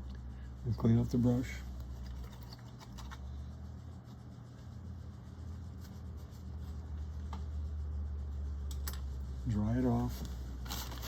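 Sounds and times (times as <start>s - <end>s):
low steady hum: 0.0s - 11.0s
paintbrush rubbing and scratching: 1.6s - 8.4s.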